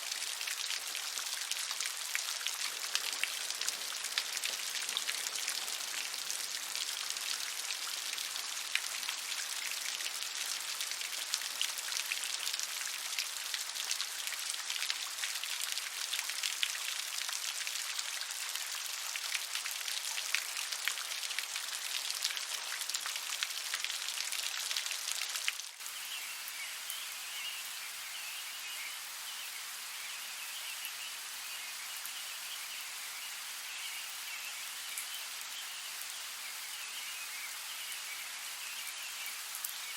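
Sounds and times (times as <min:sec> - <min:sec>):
heavy rain pattering: 0:00.0 - 0:26.0.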